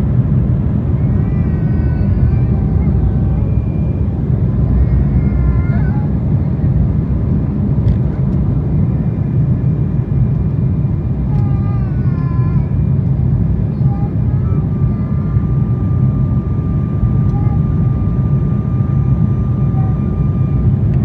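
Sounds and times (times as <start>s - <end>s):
airliner engines rumbling in cabin: 0.0s - 21.0s
thin steady whine: 8.5s - 21.0s.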